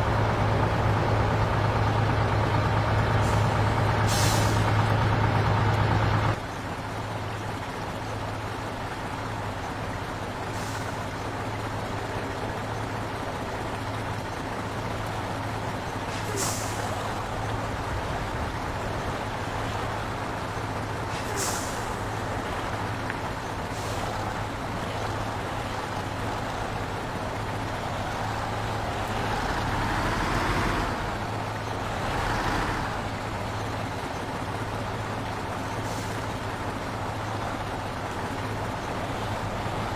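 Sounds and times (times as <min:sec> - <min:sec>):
truck engine hum: 0:00.0 - 0:39.9
air brake hisses: 0:04.1 - 0:04.6, 0:16.1 - 0:17.0, 0:21.2 - 0:22.0.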